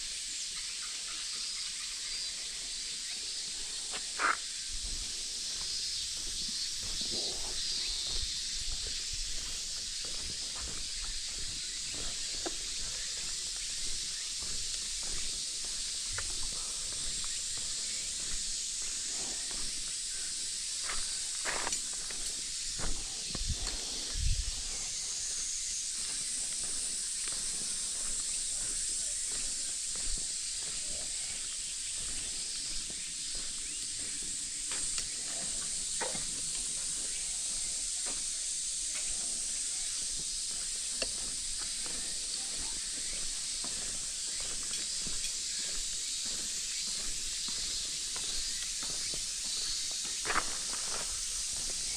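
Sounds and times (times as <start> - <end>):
cicada chorus: 0.0 - 51.9
footsteps on gravel: 3.5 - 51.9.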